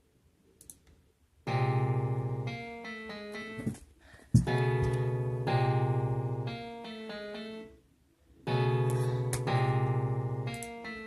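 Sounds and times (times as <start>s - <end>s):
electric piano chords and melody: 1.5s - 3.8s, 4.4s - 7.8s, 8.4s - 11.0s.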